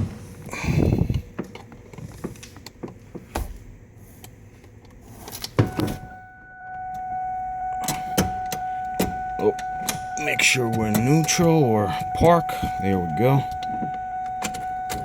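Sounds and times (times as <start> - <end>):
fuel pump whine: 0.0 - 1.8, 5.5 - 15.0
clicks and knocks inside car: 1.0 - 3.8.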